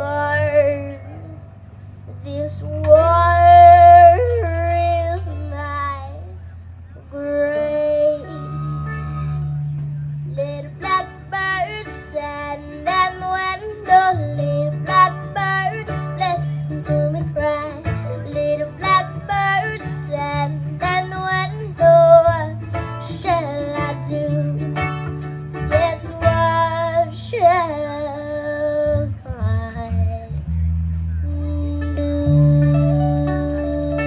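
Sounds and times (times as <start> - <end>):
high voice singing: 7.1 - 11.1, 31.8 - 34.0
plucked acoustic guitar: 31.7 - 34.0.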